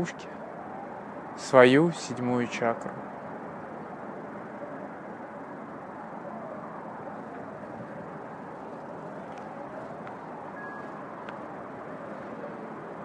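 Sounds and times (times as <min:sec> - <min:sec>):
rushing wind: 0:00.0 - 0:13.0
faint whistles: 0:10.3 - 0:11.3.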